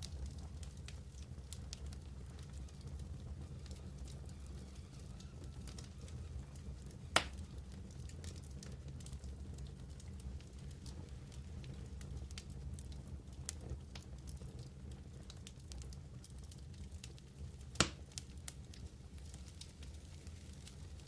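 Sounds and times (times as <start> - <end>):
fire crackles: 0.0 - 21.0
low rumble of flame: 0.0 - 21.0
loud pop of fire: 3.6 - 7.5, 17.8 - 18.1.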